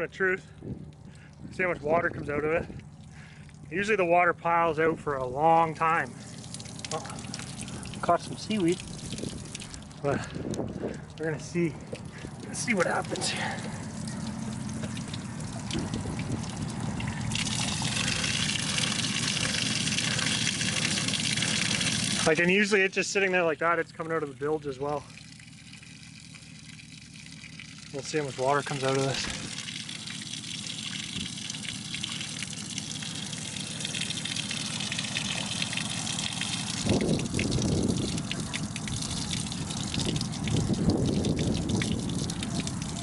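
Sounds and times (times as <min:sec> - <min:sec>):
low steady rumble: 0:00.0 - 0:43.0
water pouring out: 0:05.2 - 0:43.0.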